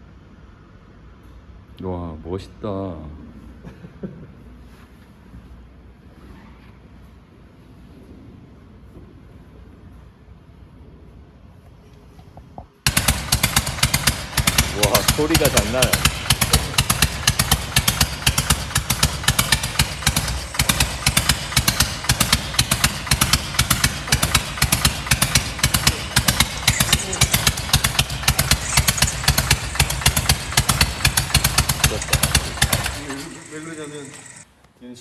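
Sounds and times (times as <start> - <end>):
motorcycle engine idling: 12.9 - 34.5.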